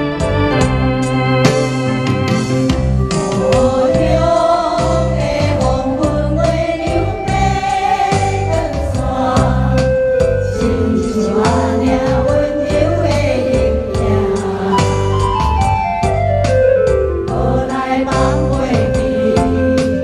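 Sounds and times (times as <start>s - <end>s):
rhythmic bass line: 0.0s - 20.0s
person singing: 10.5s - 15.2s, 17.3s - 20.0s.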